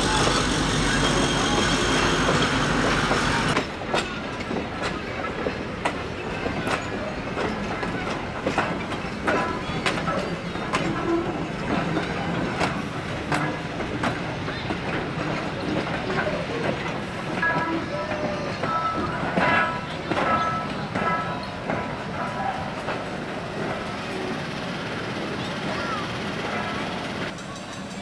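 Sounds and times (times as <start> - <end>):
train rumble: 0.0 - 28.0
train wheels clicking over rail joints: 0.0 - 28.0.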